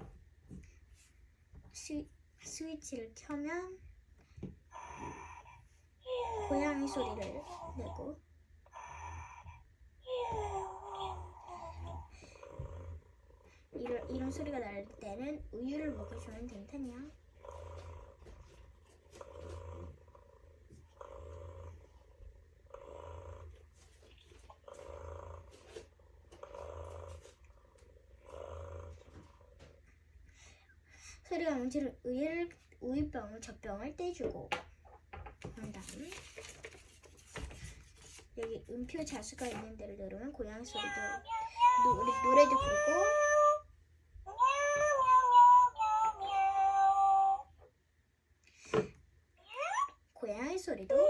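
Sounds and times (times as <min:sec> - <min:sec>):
toy kitten recorded purr: 0:04.7 - 0:05.6, 0:06.3 - 0:29.8, 0:40.3 - 0:43.6, 0:44.3 - 0:47.5
toy cat meowing through speaker: 0:40.7 - 0:43.6, 0:44.3 - 0:47.5.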